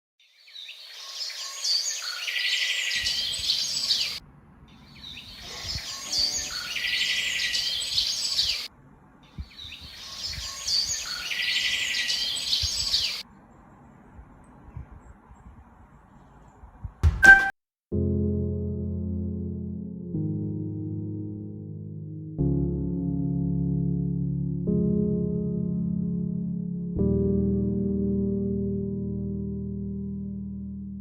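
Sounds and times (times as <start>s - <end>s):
birdsong chirps and trills: 0.2s - 13.7s.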